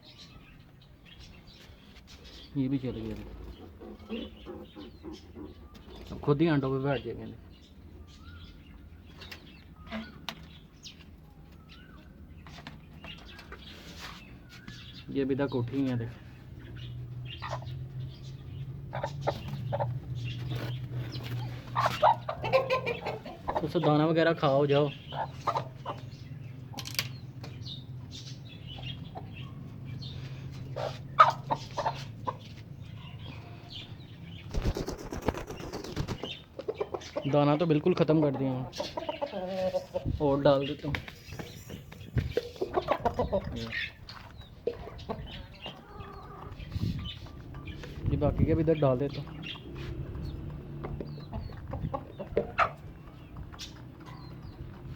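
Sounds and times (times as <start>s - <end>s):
birds warbling chirps: 0.0s - 54.9s
wing flutters: 34.4s - 36.4s.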